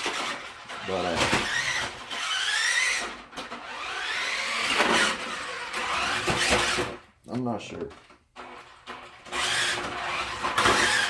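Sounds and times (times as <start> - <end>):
small electric motor whining: 0.0 - 7.0, 9.2 - 11.0.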